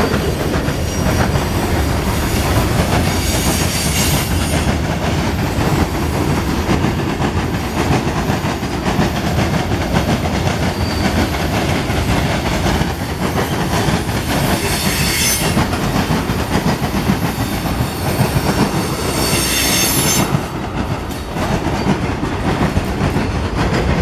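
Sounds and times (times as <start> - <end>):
freight train wheels rumbling: 0.0 - 24.0
high-pitched wheel squeal: 14.5 - 15.6, 17.9 - 20.3.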